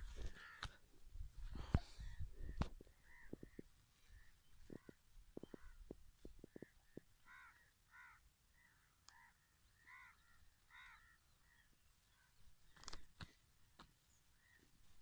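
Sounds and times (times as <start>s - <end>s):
faint bird calls: 0.0s - 0.8s, 1.6s - 15.0s.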